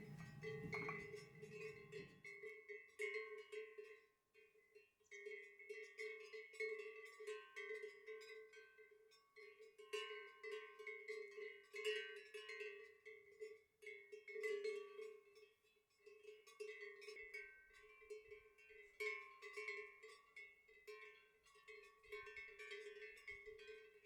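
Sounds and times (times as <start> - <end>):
bells clanking: 0.0 - 2.0.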